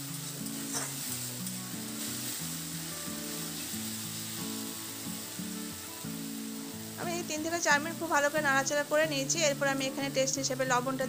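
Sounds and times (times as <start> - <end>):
food sizzling in oil: 0.0 - 11.0
soft background music: 0.0 - 11.0
metal spatula stirring: 0.5 - 2.3.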